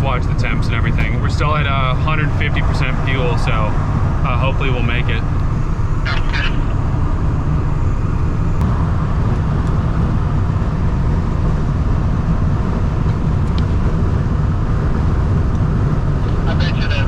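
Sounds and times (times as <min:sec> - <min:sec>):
vehicle road and engine rumble: 0:00.0 - 0:17.0.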